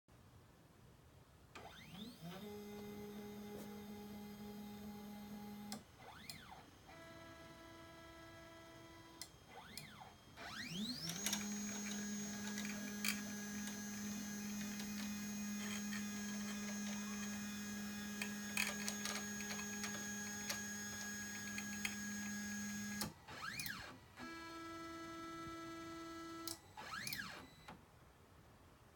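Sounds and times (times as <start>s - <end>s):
stepper motors whining: 8.8s - 23.9s.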